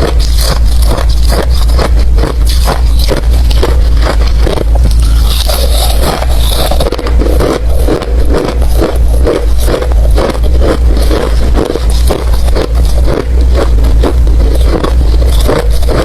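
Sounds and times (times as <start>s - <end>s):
chewing ice crunches: 0.0s - 16.0s.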